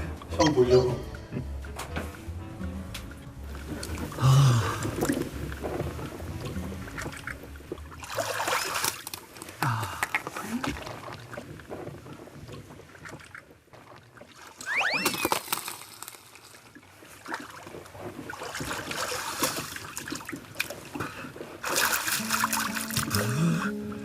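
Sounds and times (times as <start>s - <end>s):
water sloshing and splashing: 0.0s - 24.0s.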